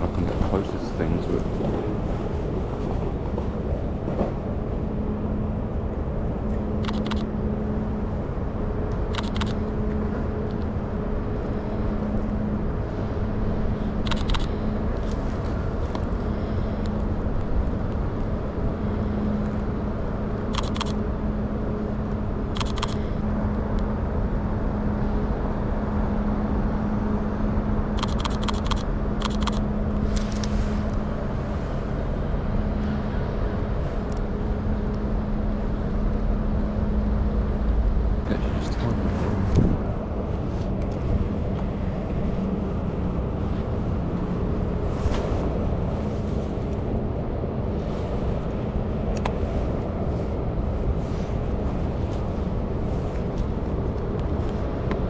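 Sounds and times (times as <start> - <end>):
constant low hum: 0.0 - 55.0
traffic noise: 0.0 - 55.0
camera shutter clicks: 28.0 - 29.6.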